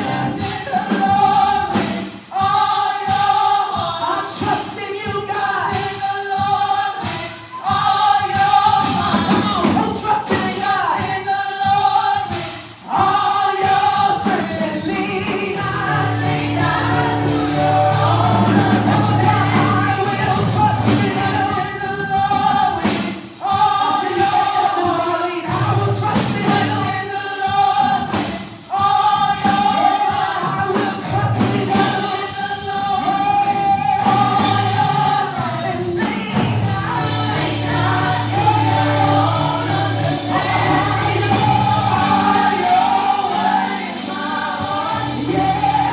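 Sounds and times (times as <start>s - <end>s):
band playing: 0.0s - 45.9s
gospel choir singing: 0.0s - 45.9s
sustained bass line: 15.6s - 21.4s, 36.7s - 43.2s.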